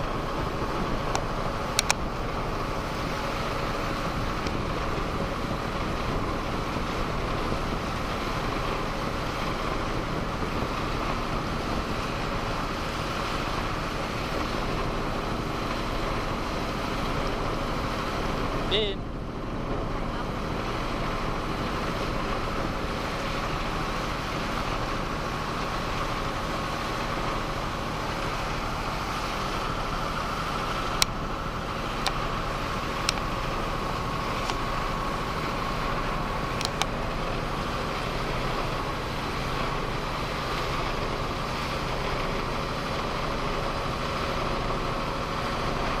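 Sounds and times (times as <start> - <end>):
boat engine droning: 0.0 - 46.0
sharp clicks: 1.8 - 2.0.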